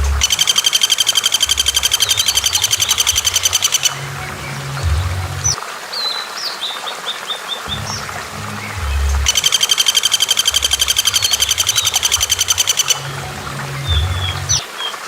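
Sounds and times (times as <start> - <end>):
low background music: 0.0 - 0.7, 1.3 - 5.7, 7.7 - 14.8
fast rattling bird trill: 0.2 - 4.0, 9.2 - 13.2
high whistled bird chirps: 0.2 - 6.6, 7.6 - 15.0.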